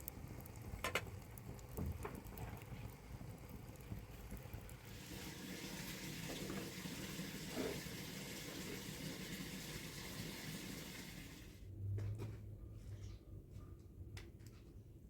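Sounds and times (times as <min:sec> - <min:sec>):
water pouring: 0:00.0 - 0:11.6.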